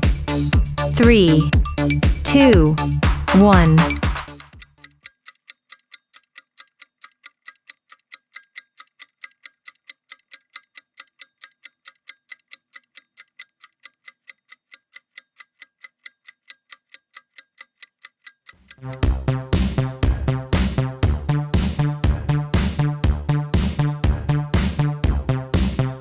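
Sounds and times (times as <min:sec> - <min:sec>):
music: 0:00.0 - 0:04.6, 0:18.8 - 0:26.0
clock ticking: 0:00.0 - 0:19.1.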